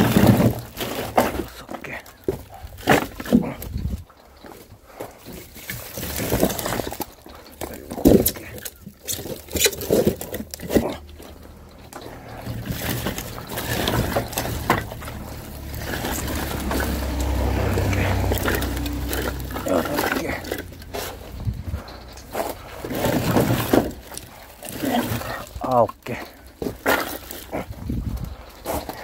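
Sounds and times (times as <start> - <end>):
indistinct voices: 6.3 - 28.1
low engine hum: 9.8 - 24.6.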